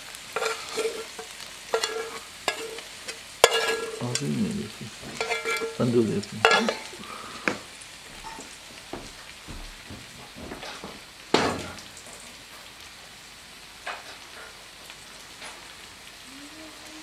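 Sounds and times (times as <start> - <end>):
food sizzling in a pan: 0.0 - 17.0
loud clunk: 9.8 - 11.8.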